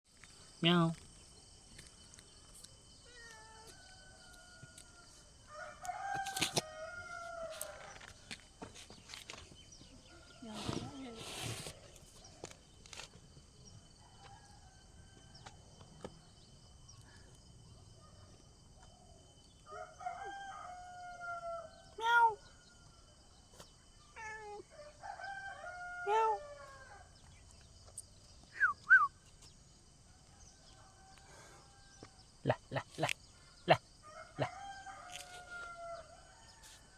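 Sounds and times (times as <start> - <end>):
cat meowing: 3.0 - 3.7, 22.0 - 22.4, 24.2 - 24.6
rooster crowing: 3.6 - 8.2, 19.7 - 22.0, 24.7 - 27.2, 34.0 - 36.9.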